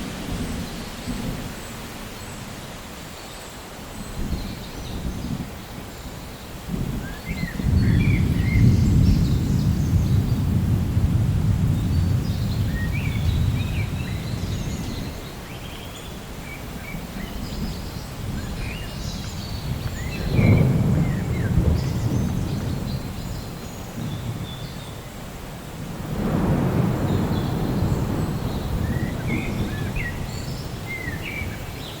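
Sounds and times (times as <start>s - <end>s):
thunder rumbling: 6.7s - 15.2s, 17.1s - 32.0s
birds chirping: 11.7s - 25.3s, 26.3s - 32.0s.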